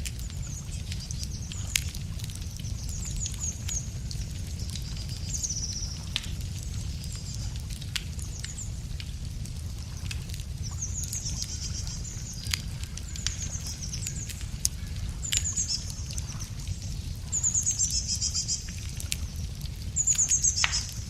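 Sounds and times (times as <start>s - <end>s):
wood fire crackling: 0.0s - 21.0s
songbird trilling: 10.7s - 16.4s, 20.0s - 21.0s.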